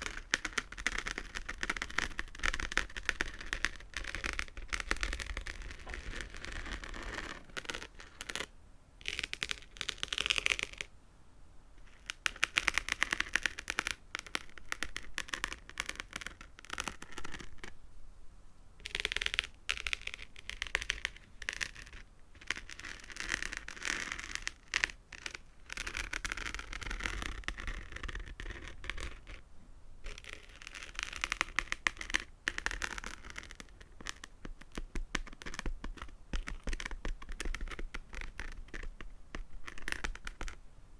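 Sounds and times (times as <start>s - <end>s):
fingernails tapping and scratching: 0.0s - 10.9s, 30.0s - 40.6s.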